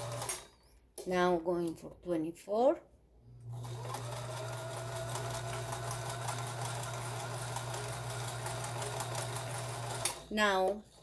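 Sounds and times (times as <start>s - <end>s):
sewing machine motor hum: 0.0s - 0.4s, 3.4s - 11.0s.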